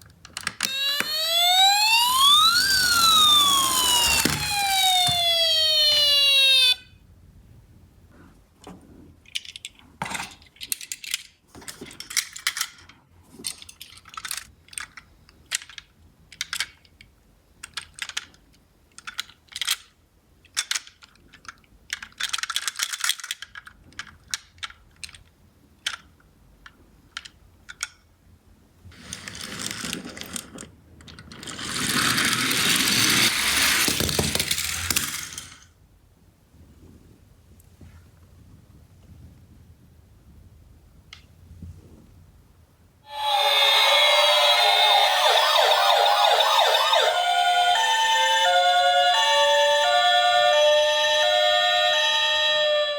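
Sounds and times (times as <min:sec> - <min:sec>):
toy cars clicking together: 0:00.0 - 0:06.7, 0:09.3 - 0:28.0, 0:29.0 - 0:35.7
toy cars rattling over cardboard: 0:00.2 - 0:06.6, 0:09.3 - 0:16.9, 0:20.5 - 0:25.3, 0:28.9 - 0:35.7.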